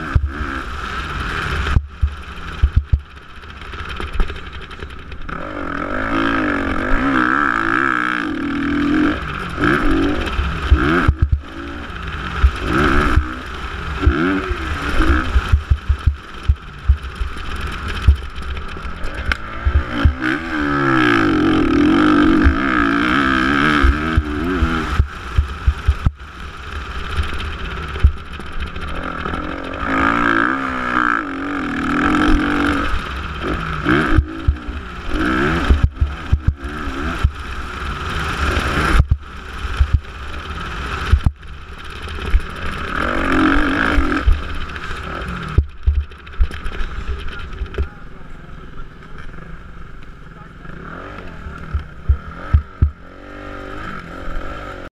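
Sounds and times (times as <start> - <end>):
motocross bike engines revving: 0.0 - 54.9
low thumps and knocks: 1.7 - 3.1, 10.7 - 11.5, 15.3 - 17.2, 19.3 - 20.3, 25.0 - 26.2, 28.0 - 28.2, 35.7 - 36.6, 39.0 - 40.1, 45.5 - 46.7, 51.7 - 53.0.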